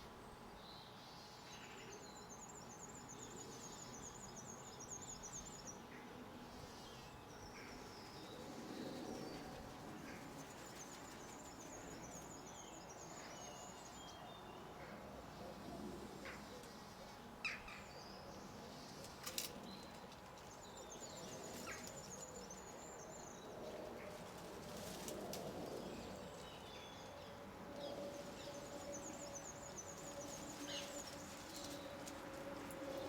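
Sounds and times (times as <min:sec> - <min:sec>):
small birds chirping: 0:16.3 - 0:33.0.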